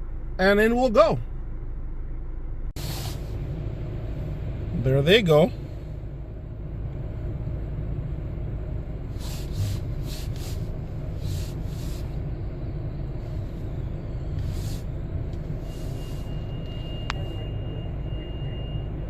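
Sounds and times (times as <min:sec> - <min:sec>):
car engine idling: 0:00.0 - 0:19.0
brief hissing bursts: 0:02.8 - 0:03.4, 0:09.2 - 0:12.2.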